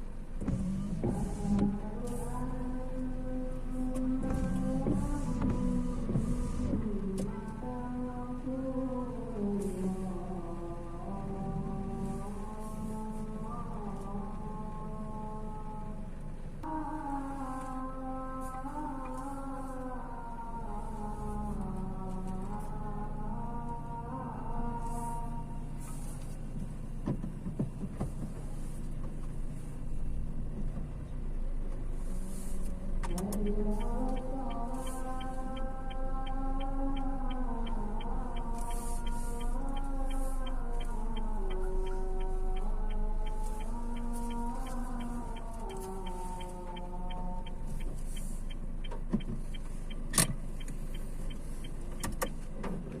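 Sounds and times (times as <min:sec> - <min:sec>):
vehicle engine humming: 0:00.0 - 0:53.0
regular light ticking: 0:31.7 - 0:53.0.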